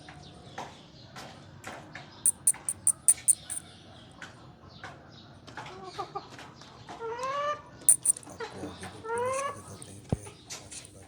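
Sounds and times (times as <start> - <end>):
small bird chirping: 2.3 - 3.7, 7.9 - 10.2.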